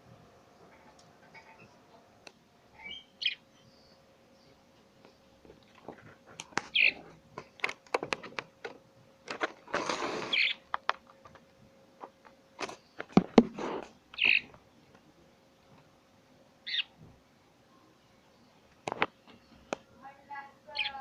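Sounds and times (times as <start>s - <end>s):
birds chirping: 0.6s - 2.0s, 2.7s - 5.4s, 6.5s - 7.8s, 10.1s - 11.3s, 14.1s - 14.9s, 16.6s - 17.0s, 17.7s - 21.0s
rustling: 9.2s - 14.6s.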